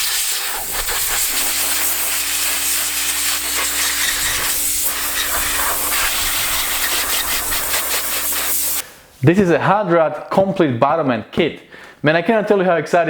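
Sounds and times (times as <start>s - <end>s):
pressure washer jet hissing: 0.0s - 8.8s
pressure washer motor hum: 0.0s - 8.8s.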